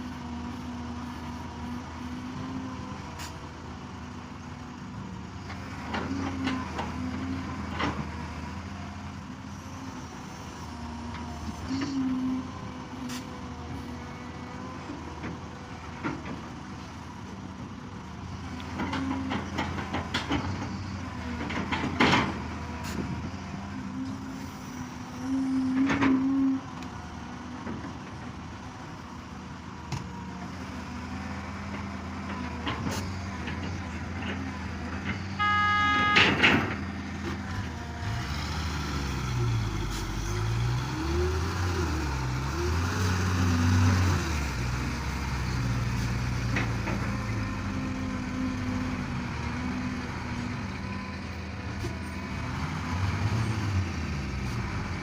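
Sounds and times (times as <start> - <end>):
excavator diesel engine: 0.0 - 55.0
brief tone: 35.2 - 36.4.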